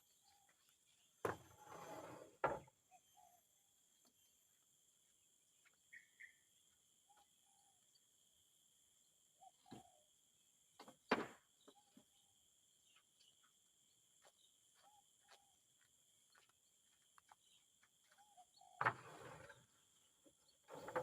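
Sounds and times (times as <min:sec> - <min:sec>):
knock and scrape: 0:01.2 - 0:02.7, 0:20.7 - 0:21.0
bird chirps: 0:02.9 - 0:04.4, 0:05.6 - 0:07.8.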